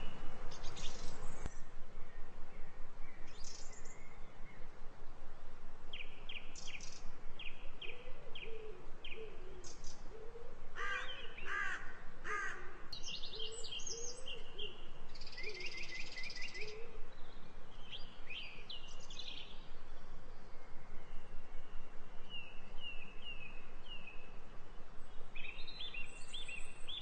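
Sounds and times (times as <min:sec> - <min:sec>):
small birds chirping: 0:00.0 - 0:04.8, 0:05.9 - 0:11.8, 0:12.9 - 0:24.4, 0:25.0 - 0:27.0
harsh crow-like calls: 0:10.8 - 0:12.9.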